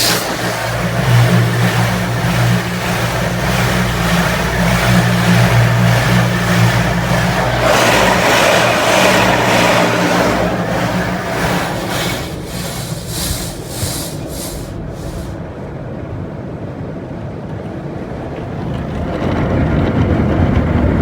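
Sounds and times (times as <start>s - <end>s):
car wash hiss: 0.0s - 15.4s
low machinery hum: 0.0s - 15.9s.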